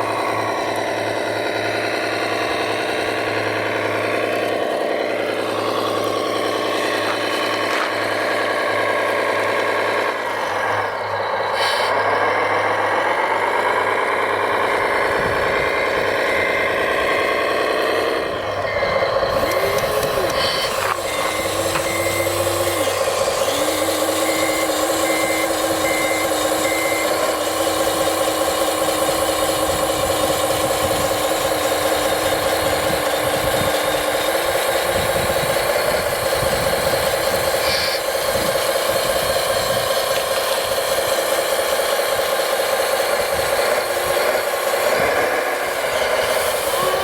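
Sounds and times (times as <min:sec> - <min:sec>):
simulated engine noise: 0:00.0 - 0:47.0
electric motor hum and whine: 0:14.5 - 0:47.0
reversing beeper: 0:15.6 - 0:29.2, 0:45.8 - 0:47.0.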